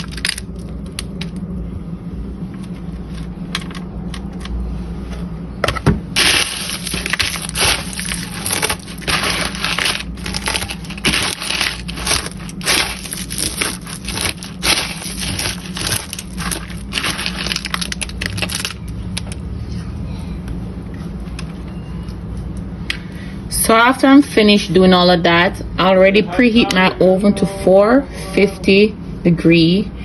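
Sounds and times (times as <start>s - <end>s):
cornflakes crunching: 0.0s - 1.2s, 6.2s - 19.3s.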